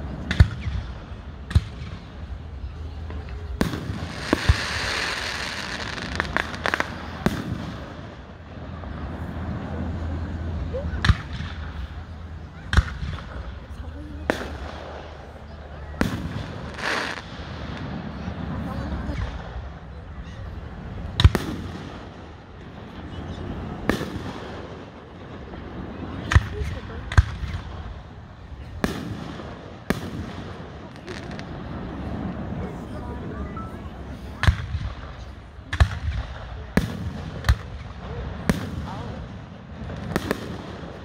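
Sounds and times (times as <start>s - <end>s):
fireworks cracking pops: 0.0s - 8.6s, 10.9s - 15.2s, 15.9s - 18.4s, 21.1s - 22.9s, 23.8s - 25.5s, 26.1s - 32.4s, 34.4s - 41.0s
fireworks bangs: 0.0s - 9.8s, 10.8s - 20.2s, 21.0s - 33.3s, 34.0s - 41.0s.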